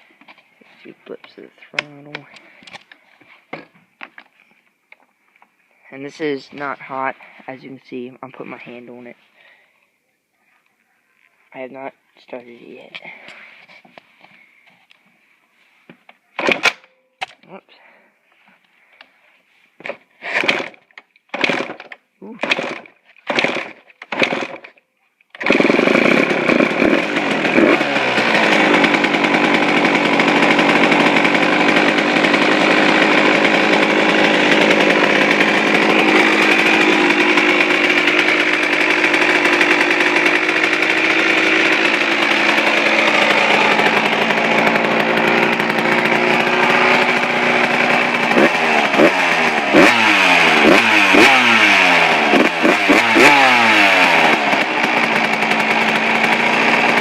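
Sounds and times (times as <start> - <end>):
dirt bike engine idling: 25.5 - 57.0.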